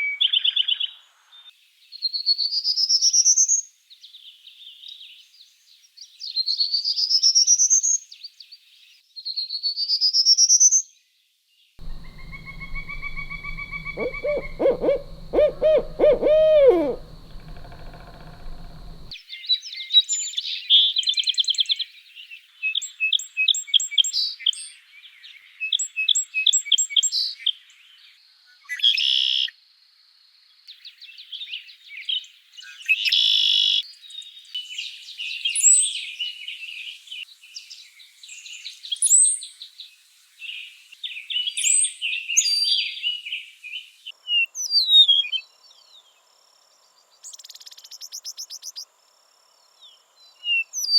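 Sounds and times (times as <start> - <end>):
songbird singing: 11.8 - 19.1.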